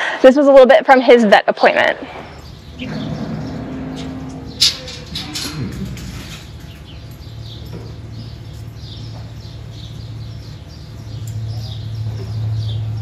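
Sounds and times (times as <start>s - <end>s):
steady low hum: 0.0s - 13.0s
small bird chirping: 2.2s - 5.0s, 6.2s - 13.0s.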